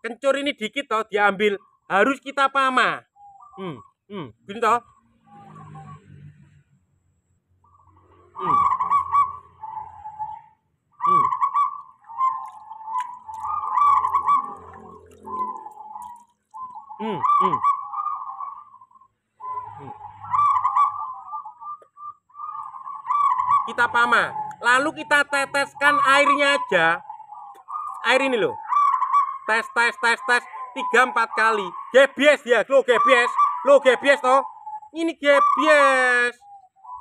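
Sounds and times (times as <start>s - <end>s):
honking bird calls: 11.0s - 34.8s.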